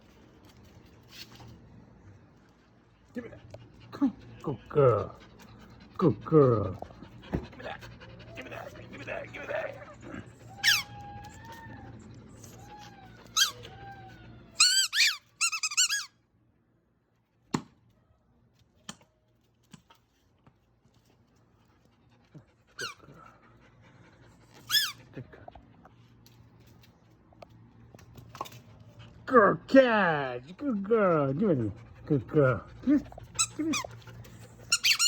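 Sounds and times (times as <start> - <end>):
squeaky ball squeaking: 10.5 - 11.8, 12.9 - 13.9, 14.6 - 16.1, 34.6 - 35.0.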